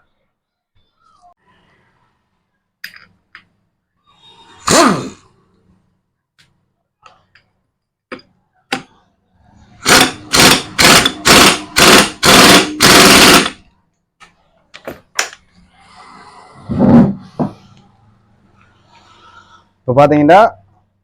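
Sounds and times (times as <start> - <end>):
impact wrench rattling: 9.8 - 13.6.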